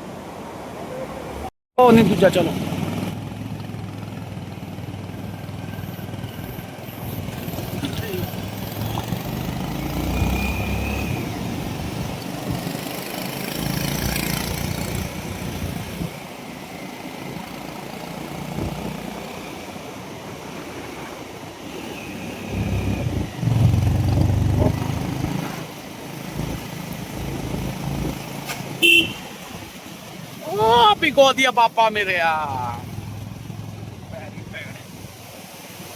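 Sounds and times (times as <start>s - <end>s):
road and wind rumble: 0.0s - 35.9s
motorcycle engine running: 1.9s - 9.8s, 32.6s - 34.4s.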